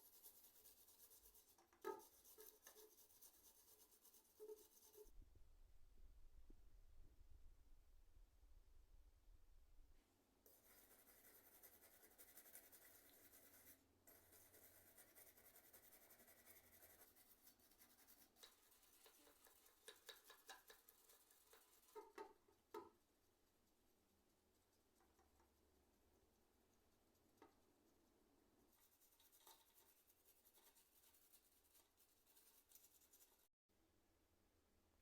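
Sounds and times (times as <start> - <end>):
scratchy scrubbing and rubbing: 0.0 - 5.1, 10.5 - 22.8, 26.7 - 33.5.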